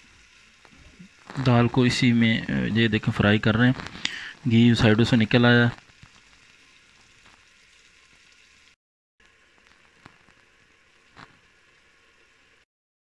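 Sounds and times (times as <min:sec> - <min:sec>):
lentils sizzling in ghee: 0:00.0 - 0:12.7.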